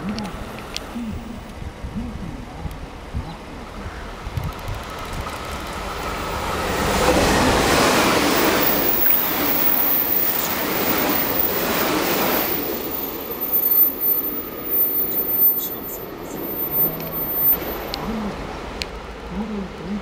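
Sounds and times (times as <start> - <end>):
wheels rumbling on rail: 0.0 - 20.0
train passing at speed: 4.3 - 20.0.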